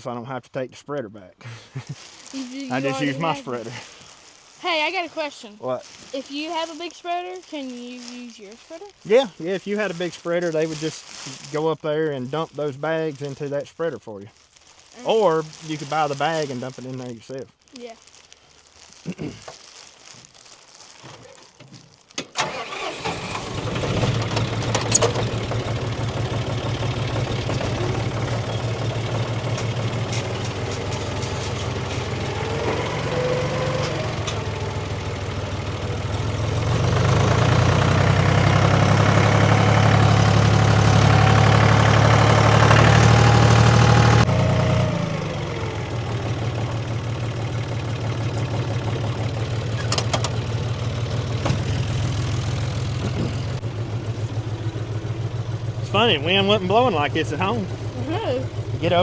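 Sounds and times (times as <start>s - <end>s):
engine starting and running: 22.2s - 59.0s.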